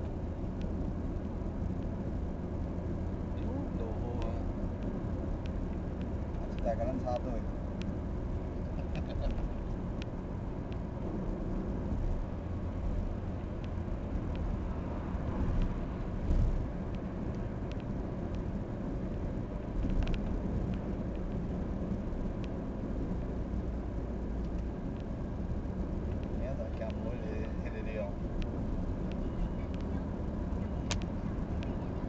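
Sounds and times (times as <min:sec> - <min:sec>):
light ticks: 0:00.0 - 0:00.9, 0:01.7 - 0:02.0, 0:03.4 - 0:14.6, 0:15.5 - 0:15.8, 0:16.4 - 0:22.6, 0:24.4 - 0:25.3, 0:26.0 - 0:32.0
heavy truck engine rumbling: 0:00.0 - 0:06.4.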